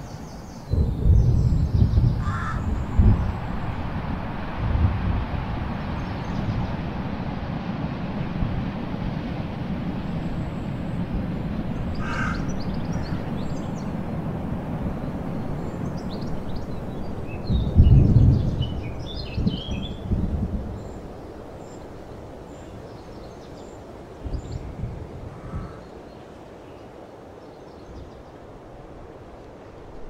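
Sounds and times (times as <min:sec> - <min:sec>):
birds chirping: 0:00.0 - 0:03.8, 0:11.7 - 0:14.0.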